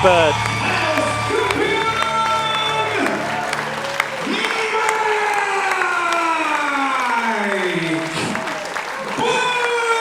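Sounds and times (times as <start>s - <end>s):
music with long held notes: 0.0s - 4.7s
crowd applauding and cheering: 0.0s - 10.0s.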